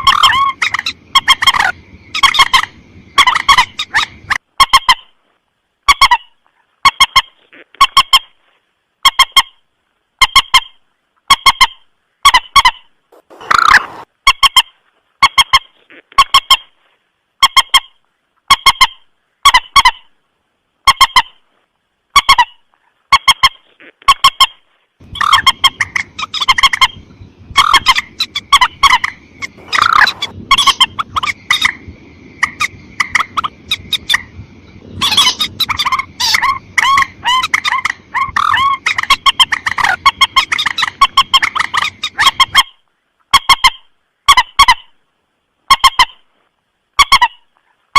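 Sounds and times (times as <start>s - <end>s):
rail bird calling: 0.0s - 5.2s, 11.4s - 16.7s, 22.2s - 43.8s.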